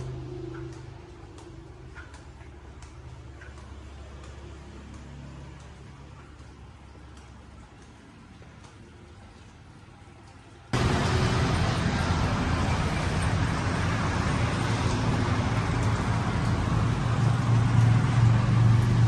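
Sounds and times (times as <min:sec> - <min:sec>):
road vehicle rush and hum: 0:00.0 - 0:02.1, 0:10.8 - 0:19.0.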